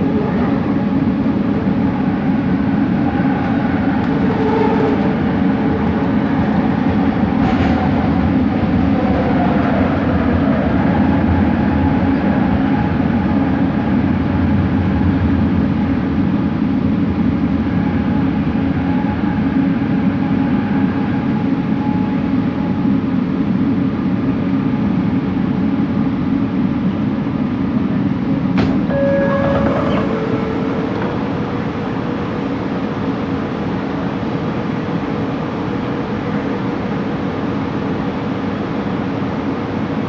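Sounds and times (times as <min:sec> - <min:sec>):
metro train wheels rumbling: 0:00.0 - 0:40.0
faint whine: 0:28.8 - 0:33.2
short tone: 0:28.9 - 0:31.9.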